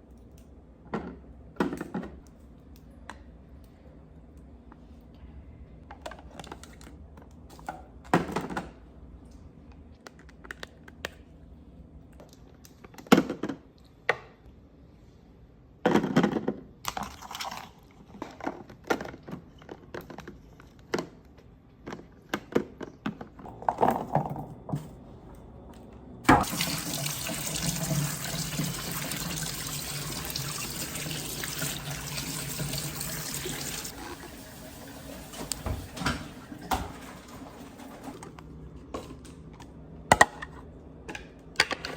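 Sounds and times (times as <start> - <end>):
tap running into a sink: 26.3 - 38.0.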